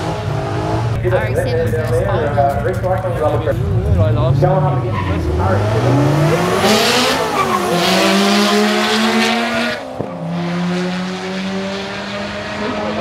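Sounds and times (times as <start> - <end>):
rotary engine revving: 3.6 - 13.0
tyres screeching: 5.9 - 9.8.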